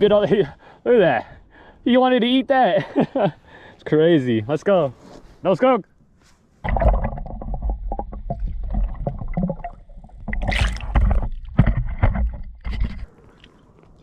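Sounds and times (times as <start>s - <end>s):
knocks and rubbing against kayak: 10.2s - 13.1s.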